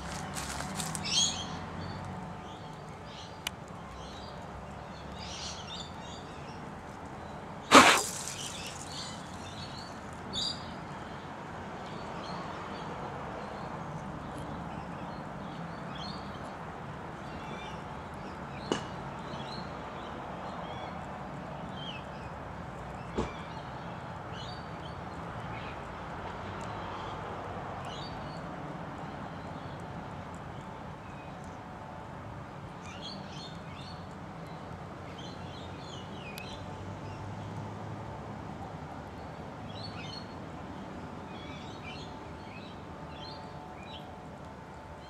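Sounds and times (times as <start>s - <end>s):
short loud noise: 7.7s - 9.3s.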